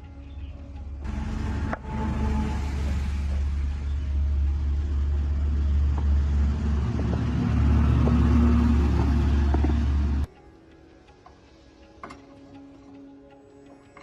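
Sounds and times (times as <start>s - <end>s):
truck engine rumbling: 0.0s - 10.3s.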